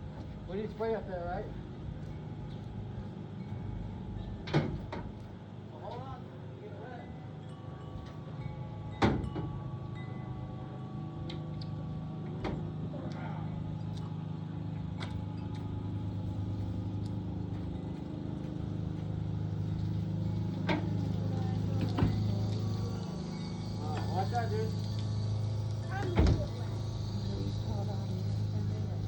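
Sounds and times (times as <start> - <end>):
machine humming: 7.1 - 29.0.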